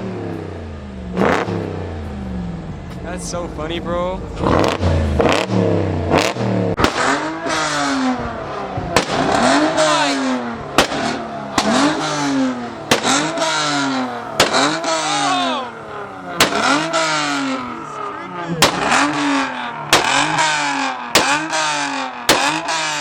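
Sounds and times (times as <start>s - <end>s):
truck engine revving: 0.0s - 23.0s
sharp crack: 4.4s - 8.2s, 8.9s - 17.6s, 18.6s - 23.0s.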